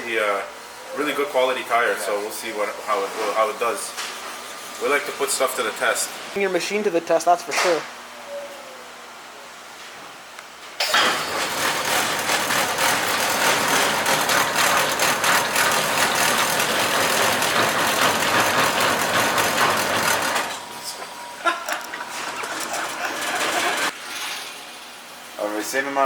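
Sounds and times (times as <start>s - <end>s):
wheel balancer spinning tire: 10.8s - 24.0s.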